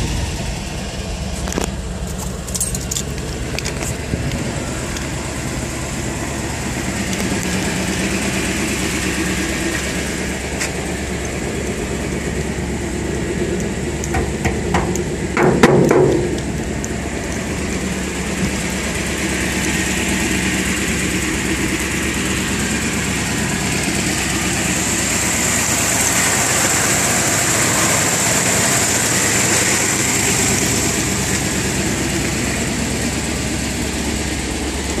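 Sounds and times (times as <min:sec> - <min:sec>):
pickup engine running: 0:00.0 - 0:35.0
loud knocks and clatter: 0:14.1 - 0:16.6.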